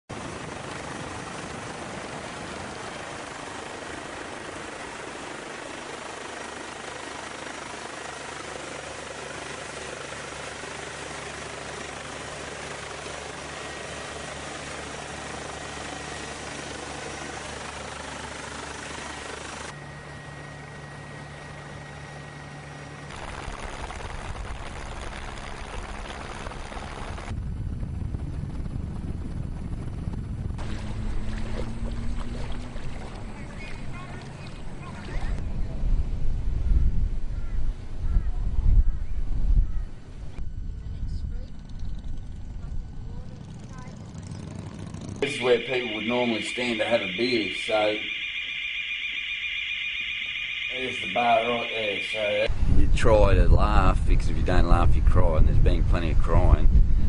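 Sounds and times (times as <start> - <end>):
aircraft engine noise: 0.1 - 57.0
faint steady tones: 45.2 - 52.5.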